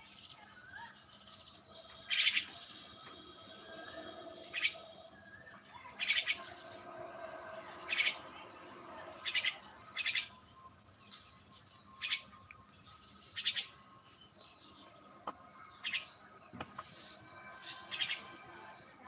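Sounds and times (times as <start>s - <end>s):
faint bird twittering: 0.0s - 18.8s
harsh bird calls: 0.4s - 10.4s, 14.8s - 18.6s.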